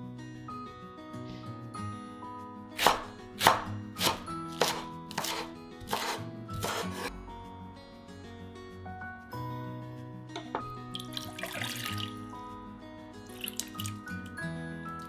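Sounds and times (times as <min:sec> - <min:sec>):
background music: 0:00.0 - 0:15.0
knife chopping on cutting board: 0:02.8 - 0:07.1.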